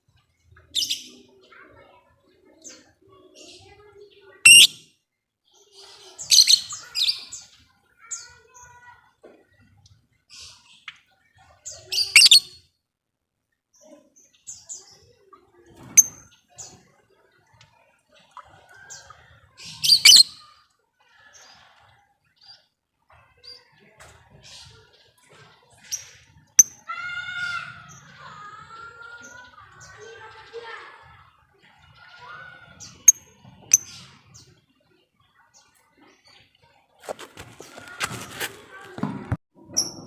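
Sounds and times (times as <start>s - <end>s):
lovebird chattering calls: 4.5s - 4.8s, 12.0s - 12.5s, 19.9s - 20.3s.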